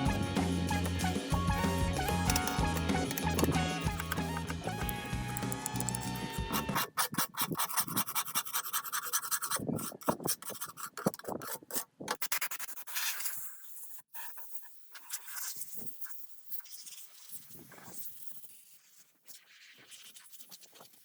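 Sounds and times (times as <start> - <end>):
background music: 0.0 - 6.9.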